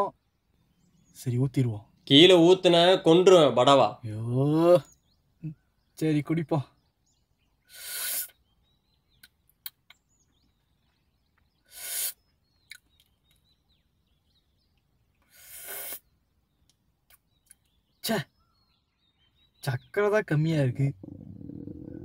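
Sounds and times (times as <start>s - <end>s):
faint bird chirps: 0.0s - 3.2s, 4.0s - 22.0s
slurping sips of tea: 7.7s - 8.4s, 11.7s - 12.2s, 15.3s - 16.1s.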